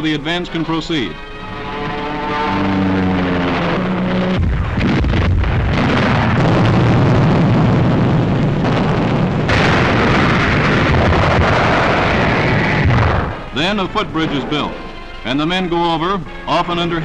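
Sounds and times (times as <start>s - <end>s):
orchestral chord: 0.0s - 4.4s, 13.6s - 17.0s
sharp blasts: 2.3s - 15.7s
shell explosions rumble: 3.1s - 15.7s.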